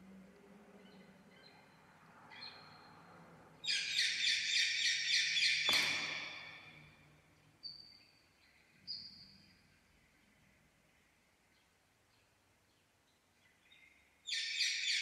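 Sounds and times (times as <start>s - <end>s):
sharp click: 5.7s - 6.6s.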